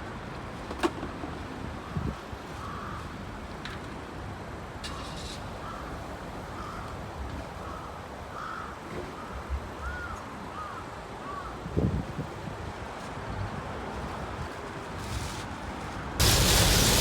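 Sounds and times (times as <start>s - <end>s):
bird cawing: 7.7s - 8.7s.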